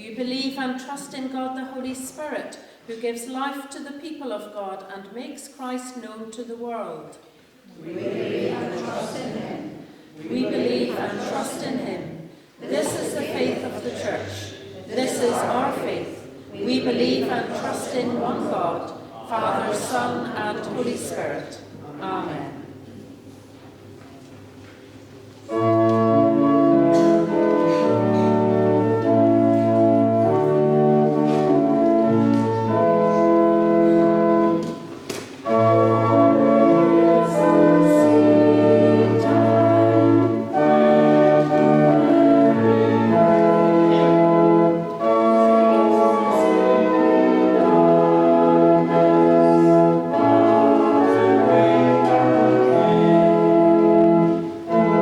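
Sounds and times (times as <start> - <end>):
church organ playing a hymn: 12.7 - 55.0.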